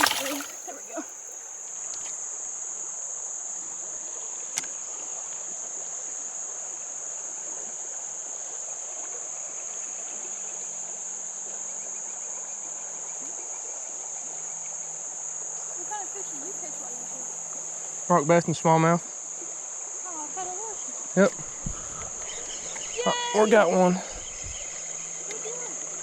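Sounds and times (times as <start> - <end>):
faint even hiss: 0.0 - 2.2
high-pitched insect chorus: 0.0 - 26.0.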